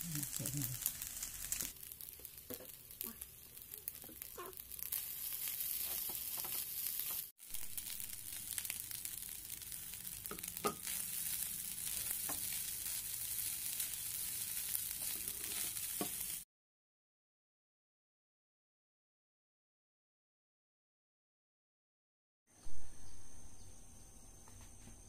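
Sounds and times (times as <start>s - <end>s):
rice sizzling in a wok: 0.0s - 16.5s.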